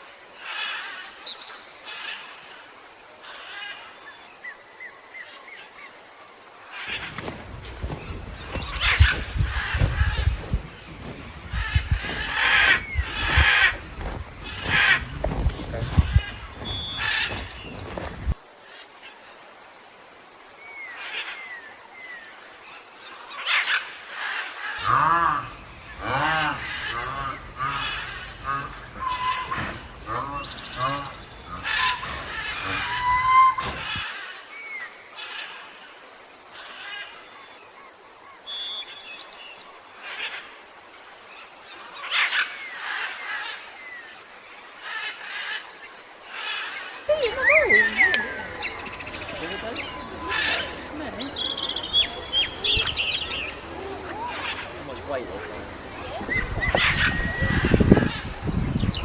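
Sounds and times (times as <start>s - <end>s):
birds chirping faintly: 0.4s - 18.5s, 41.3s - 59.0s.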